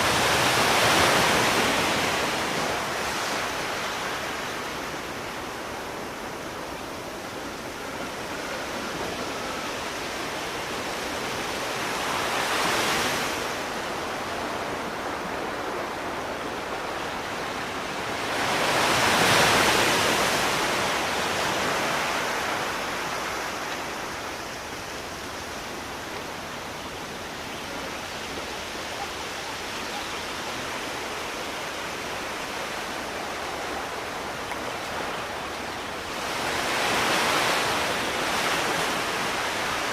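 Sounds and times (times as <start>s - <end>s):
waves breaking: 0.0s - 39.9s
waves washing: 0.0s - 39.9s.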